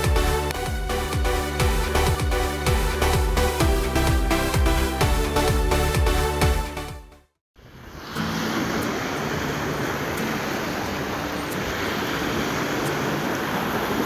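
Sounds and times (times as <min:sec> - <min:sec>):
wind: 0:07.6 - 0:14.0
sea waves: 0:07.7 - 0:14.0.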